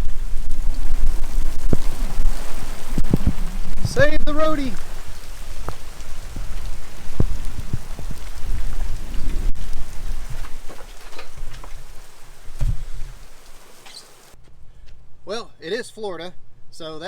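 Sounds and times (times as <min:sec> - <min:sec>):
low rumble: 0:00.0 - 0:10.7
heavy rain pouring: 0:00.0 - 0:14.4
raindrops tapping close by: 0:00.0 - 0:14.4.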